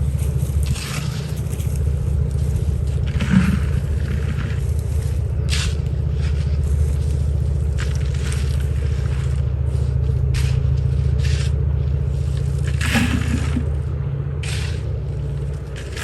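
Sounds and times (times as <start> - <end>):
shovel scraping loose ground: 0.0 - 2.0, 2.6 - 7.2, 12.2 - 13.8, 14.4 - 16.0
low drone: 0.0 - 16.0.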